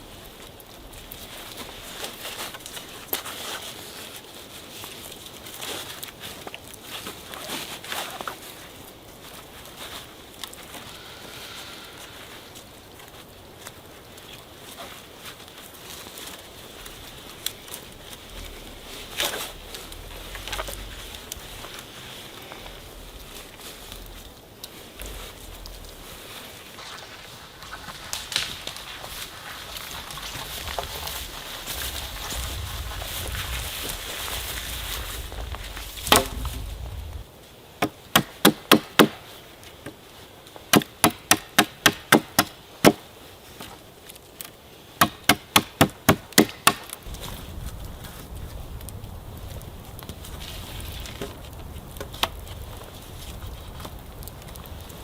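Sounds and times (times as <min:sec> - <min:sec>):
rain pattering: 0:00.0 - 0:38.4, 0:46.9 - 0:55.0
rushing background rumble: 0:16.7 - 0:26.8, 0:29.6 - 0:37.4
wood chopping strikes: 0:36.0 - 0:36.6, 0:37.8 - 0:39.2, 0:40.7 - 0:43.0, 0:45.0 - 0:47.0.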